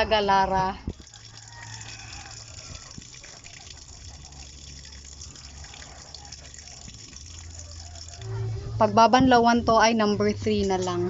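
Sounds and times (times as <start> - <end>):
water running: 0.0 - 8.6.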